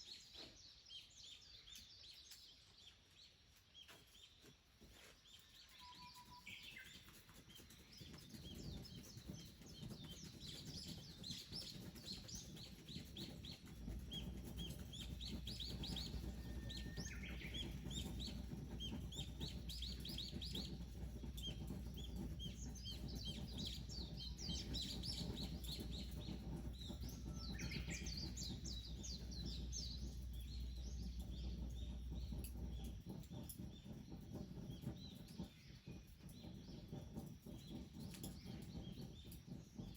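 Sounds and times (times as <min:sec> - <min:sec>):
songbirds chirping: 0:00.0 - 0:39.9
low steady rumble: 0:10.2 - 0:39.9.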